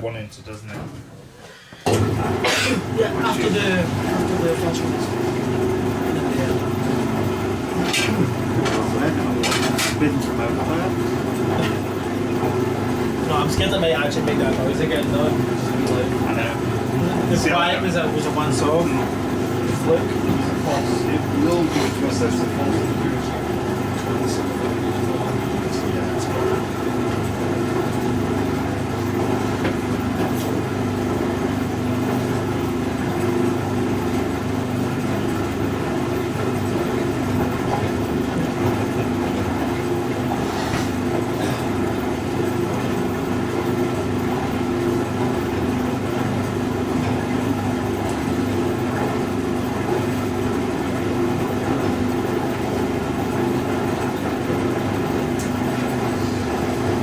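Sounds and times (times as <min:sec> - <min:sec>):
washing machine spinning: 0:00.1 - 0:57.0.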